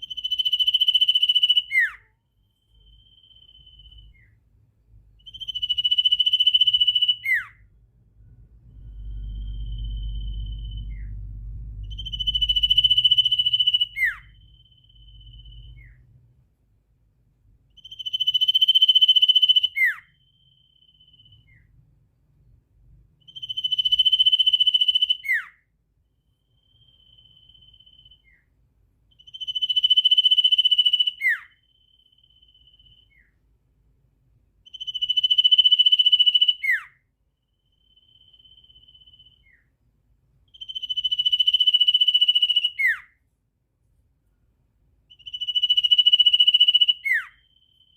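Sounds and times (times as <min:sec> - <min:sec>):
low rumble: 0:07.8 - 0:16.4.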